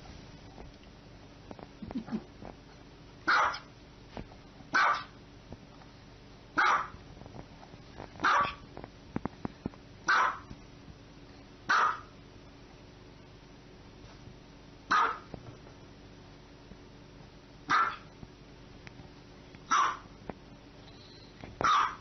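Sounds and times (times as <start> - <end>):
small dog barking: 3.2 - 3.7, 4.7 - 5.2, 6.6 - 7.0, 8.2 - 8.6, 10.1 - 10.5, 11.7 - 12.1, 14.9 - 15.3, 17.7 - 18.1, 19.7 - 20.1, 21.6 - 22.0.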